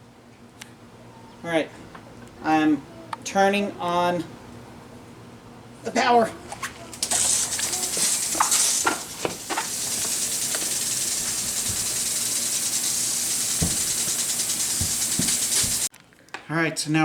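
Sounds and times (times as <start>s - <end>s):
sprinkler spraying water: 7.0s - 15.9s
knocks: 13.6s - 14.0s, 14.6s - 15.9s.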